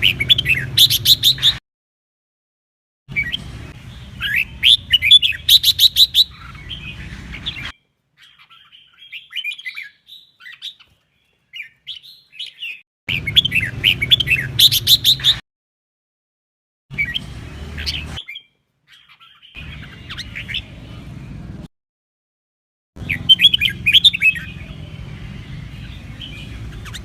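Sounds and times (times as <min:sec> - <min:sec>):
bird singing warbled phrases: 0:00.0 - 0:01.6, 0:03.1 - 0:15.4, 0:16.9 - 0:21.7, 0:23.0 - 0:27.0
sharp bird chip notes: 0:00.0 - 0:01.6, 0:03.1 - 0:10.6, 0:12.4 - 0:15.4, 0:23.0 - 0:27.0.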